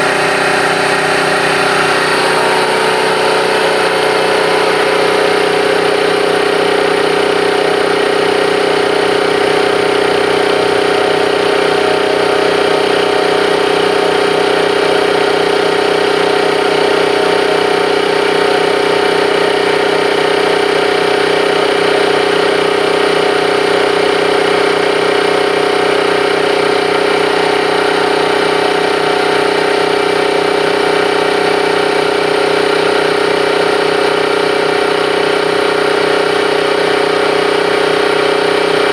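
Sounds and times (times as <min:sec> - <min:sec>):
compressor machine hum: 0:00.0 - 0:38.9.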